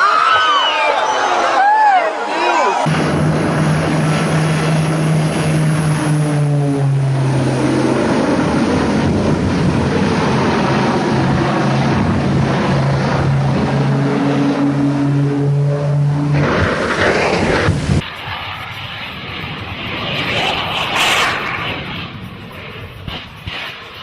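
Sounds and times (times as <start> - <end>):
dense rushing noise: 2.8 - 24.0.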